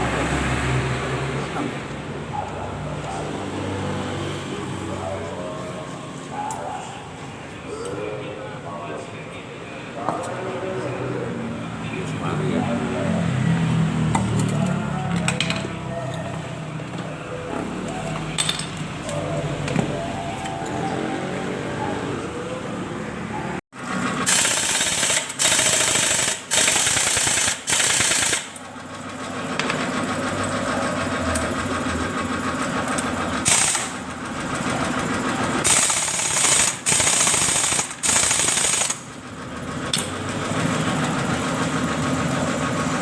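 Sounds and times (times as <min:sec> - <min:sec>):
impact wrench bursts: 0:23.8 - 0:30.4, 0:32.7 - 0:41.9.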